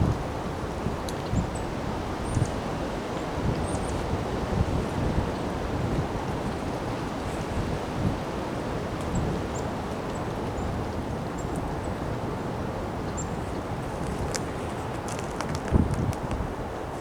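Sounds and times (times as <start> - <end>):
wind buffeting microphone: 0.0 - 8.3, 12.1 - 17.0.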